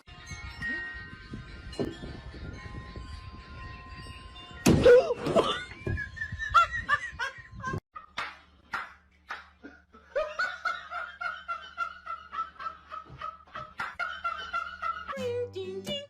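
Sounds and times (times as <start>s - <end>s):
laughter in bursts: 5.4s - 8.2s, 9.6s - 15.2s.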